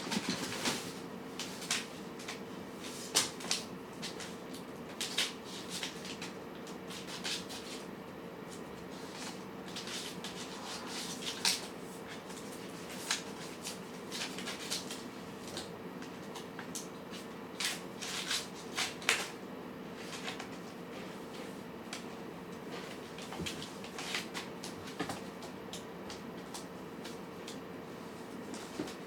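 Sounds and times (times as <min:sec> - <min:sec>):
faint hum: 0:07.6 - 0:14.5.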